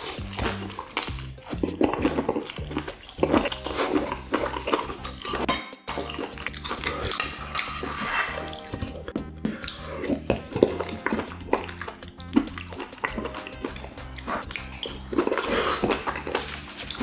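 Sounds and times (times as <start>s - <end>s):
background music with bass: 0.0s - 17.0s
wet chewing: 0.0s - 17.0s
utensils scraping frying pan: 3.1s - 9.0s.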